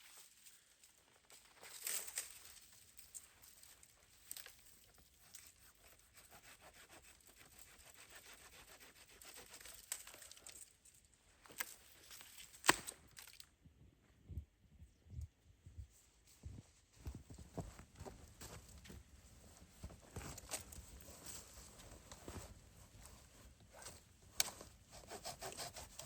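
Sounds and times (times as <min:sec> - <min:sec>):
sharp wood crack: 0:12.4 - 0:13.5.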